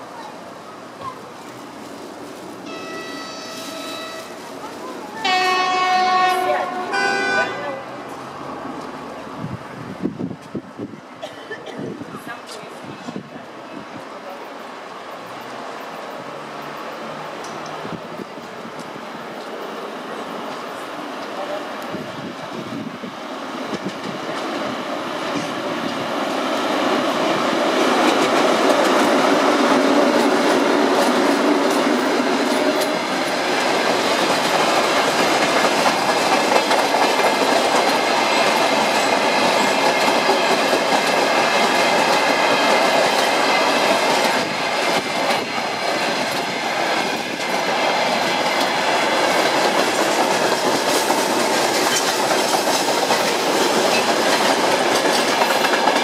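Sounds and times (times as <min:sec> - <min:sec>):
diesel locomotive engine: 0:11.9 - 0:56.0
wheels clattering over rail joints: 0:27.0 - 0:56.0.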